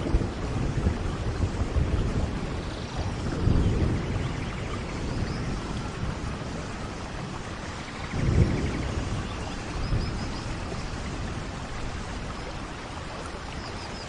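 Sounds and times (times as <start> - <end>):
distant thunder rumble: 0.0 - 14.0
steady rain: 0.0 - 14.0.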